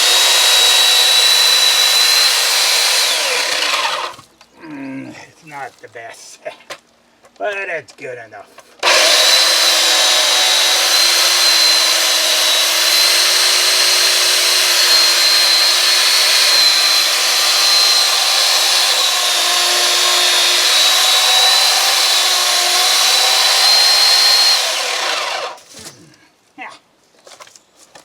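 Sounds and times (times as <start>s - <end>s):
electric chainsaw cutting wood: 0.0s - 4.2s, 8.8s - 25.7s.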